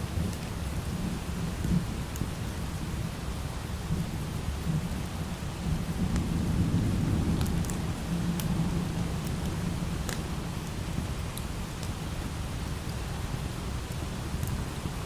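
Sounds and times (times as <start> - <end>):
light rain: 0.0 - 15.0
low rolling thunder: 3.8 - 11.3.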